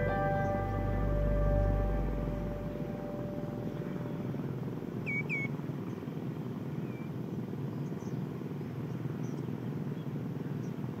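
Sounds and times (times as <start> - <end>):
faint high chirps: 0.0 - 5.5
steady low rumble: 0.0 - 7.0
whistled bird calls: 5.0 - 5.5.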